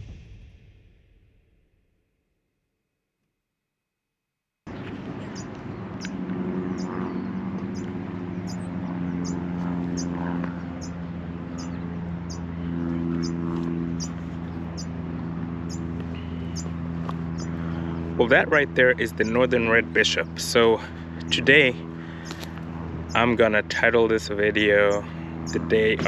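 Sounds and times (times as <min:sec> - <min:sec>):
small bird calling: 0:04.7 - 0:15.0, 0:15.6 - 0:18.2, 0:22.0 - 0:22.5
low hum of traffic: 0:04.7 - 0:26.0.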